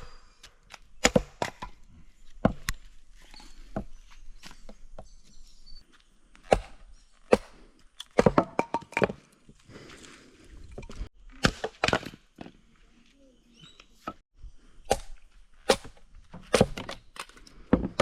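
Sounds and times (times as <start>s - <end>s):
wood being chopped: 0.7s - 1.8s, 6.4s - 9.2s, 11.4s - 12.5s, 14.9s - 18.0s.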